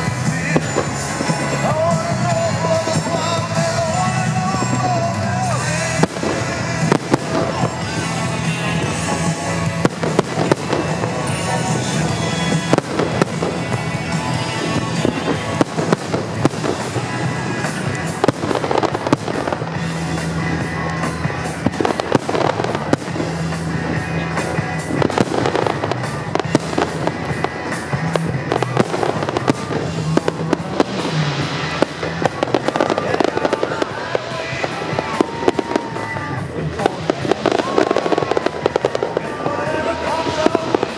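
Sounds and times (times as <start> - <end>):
fireworks bangs and crackles: 0.0 - 40.9
music with low notes: 0.0 - 40.9.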